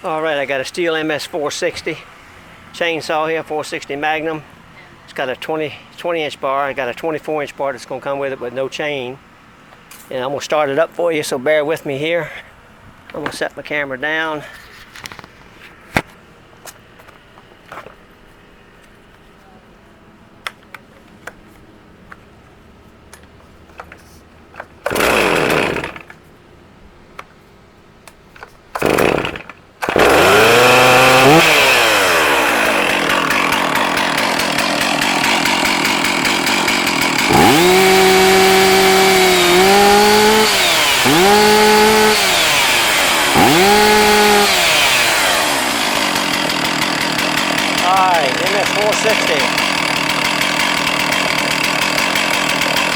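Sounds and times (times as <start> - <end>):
chainsaw idling and revving: 24.8 - 26.1, 28.7 - 52.9
starter cord pulls: 28.7 - 52.9.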